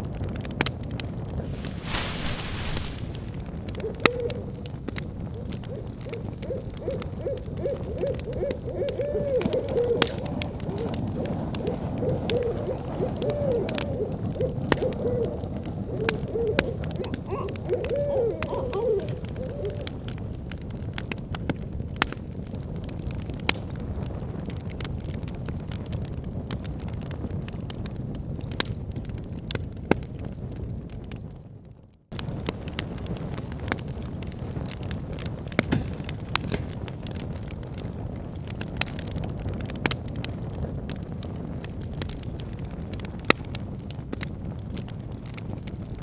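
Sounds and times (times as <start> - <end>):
bonfire rumbling and popping: 0.0 - 46.0
owl hooting: 1.5 - 20.1.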